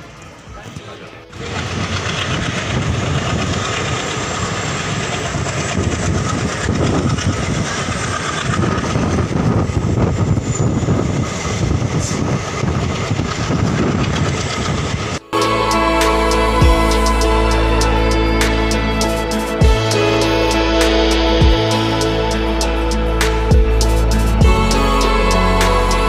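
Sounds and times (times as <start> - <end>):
train wheels on rails rattling: 0.0 - 15.2.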